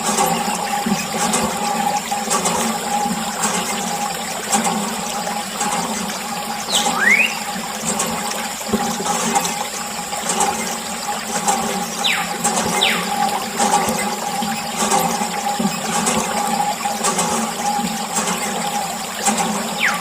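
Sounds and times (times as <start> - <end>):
running water rushing: 0.0 - 20.0
short pitch-sliding chirp: 6.7 - 7.5, 12.0 - 13.1, 19.8 - 20.0.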